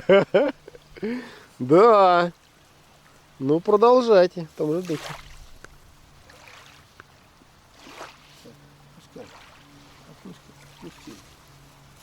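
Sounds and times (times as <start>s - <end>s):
water lapping against boat: 4.6s - 12.0s.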